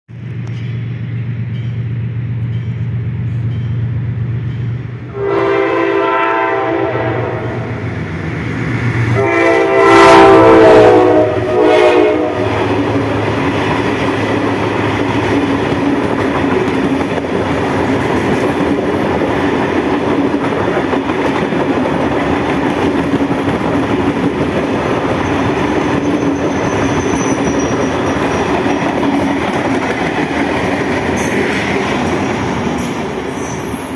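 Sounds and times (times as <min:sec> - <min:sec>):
train wheels rumbling on rails: 0:00.1 - 0:33.9
train horn blasts: 0:05.1 - 0:07.8, 0:09.1 - 0:13.0.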